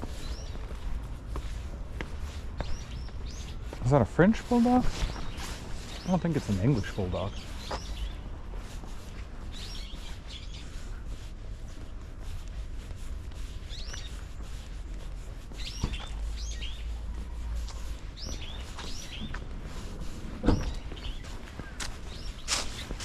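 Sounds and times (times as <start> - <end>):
birds chirping downward calls: 0.0 - 8.4, 9.5 - 11.0, 15.6 - 23.0
steady low rumble: 0.0 - 23.0.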